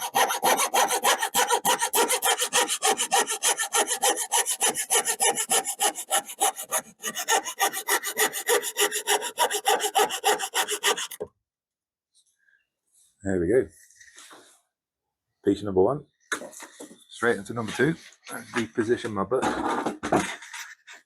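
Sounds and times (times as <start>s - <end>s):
hand saw cutting wood: 0.0s - 11.2s.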